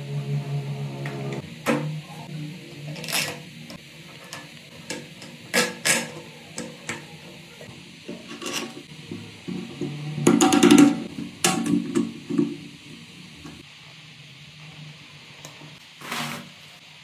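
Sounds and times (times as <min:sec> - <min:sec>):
hard object scraping a surface: 0:16.0 - 0:16.6.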